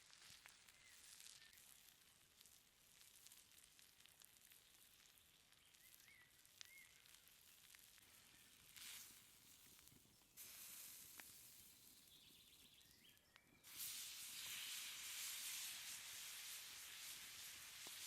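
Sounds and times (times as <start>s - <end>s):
steak sizzling on hot stone: 0.0s - 12.3s, 13.6s - 18.0s
bird chirps: 12.0s - 13.7s.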